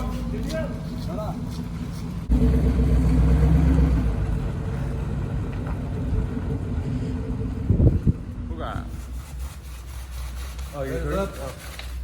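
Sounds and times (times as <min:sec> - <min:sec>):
truck engine running: 0:00.0 - 0:08.5.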